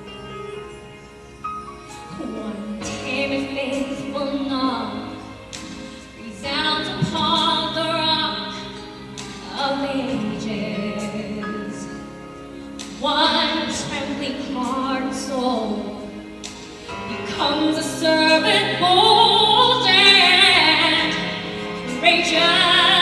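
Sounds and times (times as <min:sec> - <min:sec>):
musical accompaniment: 0:00.0 - 0:23.0
woman singing with vibrato: 0:02.1 - 0:05.2, 0:06.1 - 0:08.8, 0:09.4 - 0:11.9, 0:17.1 - 0:23.0.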